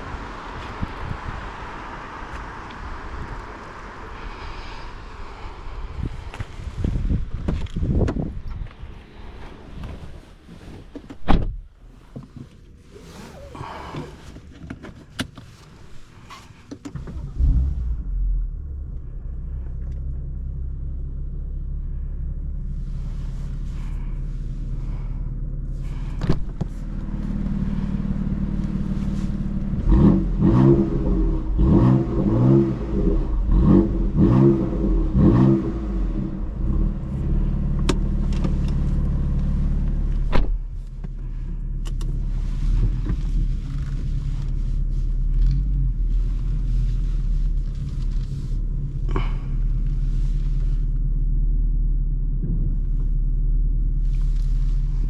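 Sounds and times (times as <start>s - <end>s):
car engine starting and idling: 0.0s - 55.0s
engine revving in quick blips: 26.7s - 40.3s.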